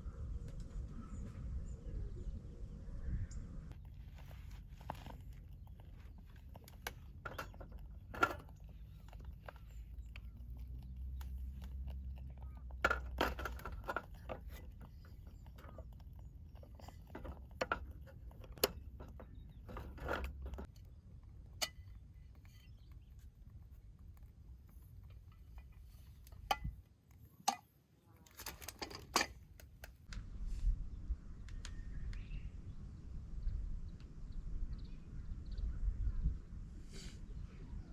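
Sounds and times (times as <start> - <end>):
low outdoor rumble: 0.0 - 27.1, 28.7 - 37.9
small objects clicking and clattering: 3.7 - 30.1.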